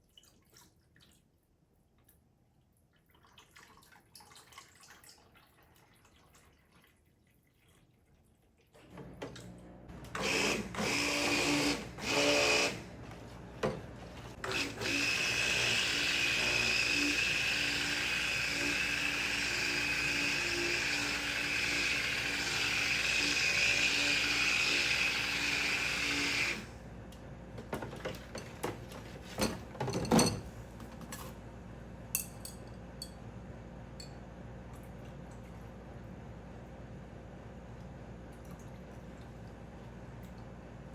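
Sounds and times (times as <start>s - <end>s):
electric mixer whirring: 9.6s - 26.8s.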